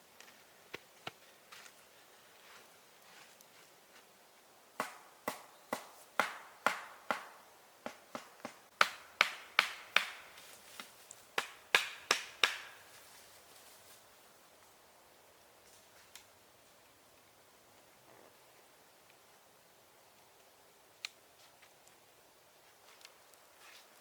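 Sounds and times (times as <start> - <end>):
wood chopping strikes: 4.8 - 12.8.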